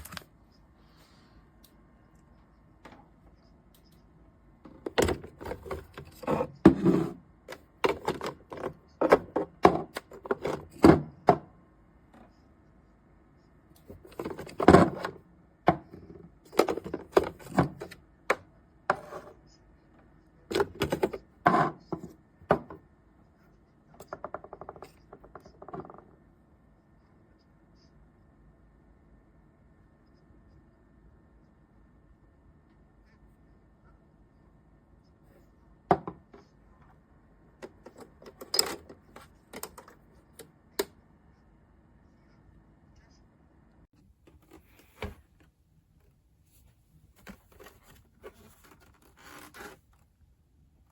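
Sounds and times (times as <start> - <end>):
hard objects knocking and clattering: 7.8 - 11.5, 14.1 - 18.0, 35.9 - 36.4.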